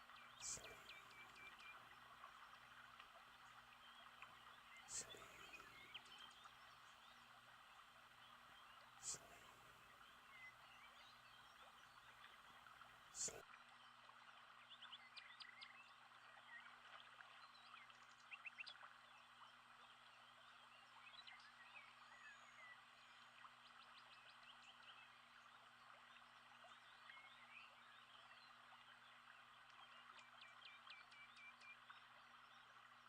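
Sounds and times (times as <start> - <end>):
bird chirps and trills: 0.0 - 2.6, 3.4 - 7.3, 8.4 - 12.4
hiss of background chorus: 4.8 - 5.8, 9.0 - 9.6, 13.2 - 13.4.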